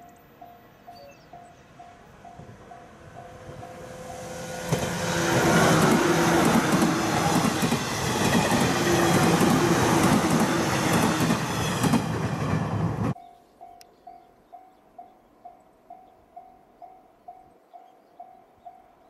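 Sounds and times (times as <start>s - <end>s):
train motor hum: 2.1s - 13.2s
train wheels rumbling on rail: 2.2s - 13.2s
clickety-clack over rail joints: 4.7s - 13.2s.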